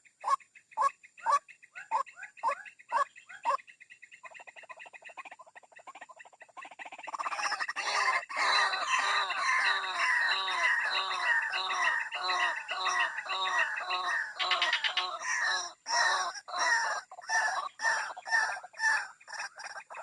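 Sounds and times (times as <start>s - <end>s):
waterhen calls: 7.1s - 20.0s.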